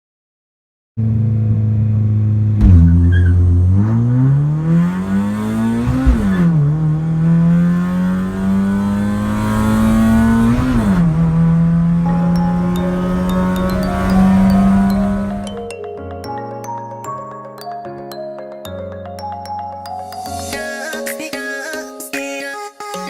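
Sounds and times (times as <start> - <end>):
drag car engine revving: 1.0 - 15.7.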